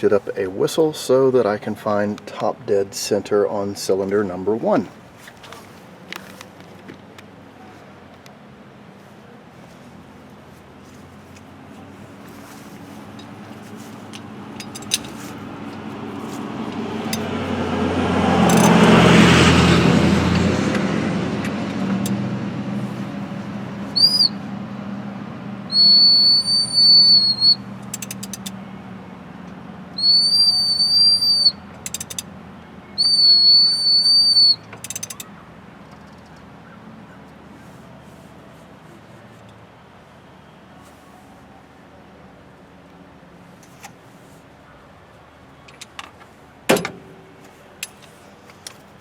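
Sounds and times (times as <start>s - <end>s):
high whistle toots: 23.9s - 24.4s, 25.7s - 27.6s, 30.0s - 31.6s, 33.0s - 34.7s.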